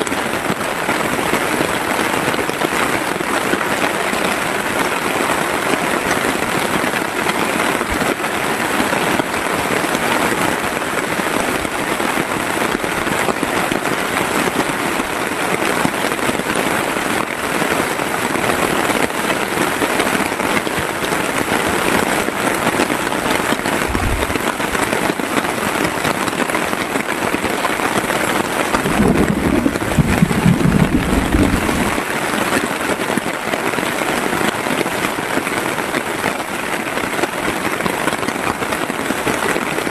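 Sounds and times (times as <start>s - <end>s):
heavy rain: 0.0s - 39.9s
low rumbling thumps: 23.8s - 24.8s, 28.9s - 31.9s.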